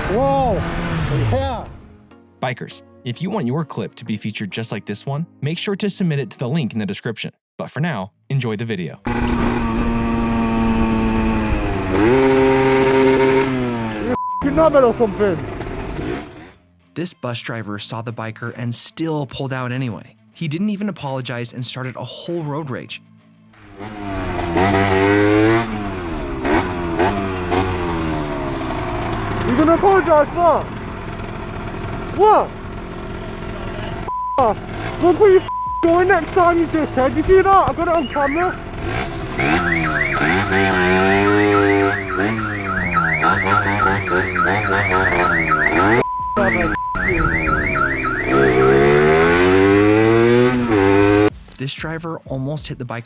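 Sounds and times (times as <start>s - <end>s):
motorcycle engine revving: 0.0s - 1.6s, 9.1s - 16.6s, 23.6s - 51.5s
censor bleeps: 14.0s - 14.6s, 34.1s - 34.6s, 35.4s - 36.0s, 39.5s - 49.1s
car alarm rising whoop: 39.4s - 49.8s.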